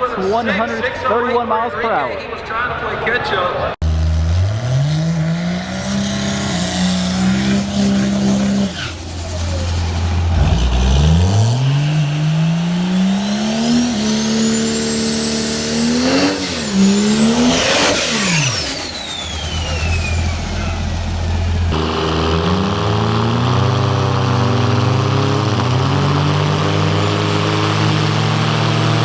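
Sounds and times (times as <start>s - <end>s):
drag racer engines full throttle: 2.8s - 29.0s.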